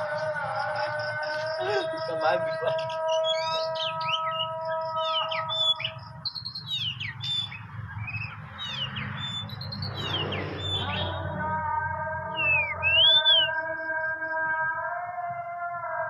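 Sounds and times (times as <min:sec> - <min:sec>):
droning chord of level tones: 0:00.0 - 0:06.3
bird singing sweeping whistles: 0:02.6 - 0:11.4, 0:12.3 - 0:13.7.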